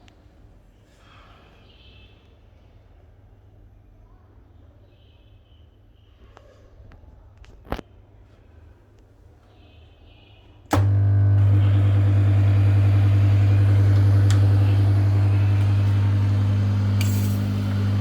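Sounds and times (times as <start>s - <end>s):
steam cleaner switching on: 10.7s - 18.0s
steam cleaner buzzing hum: 10.8s - 18.0s.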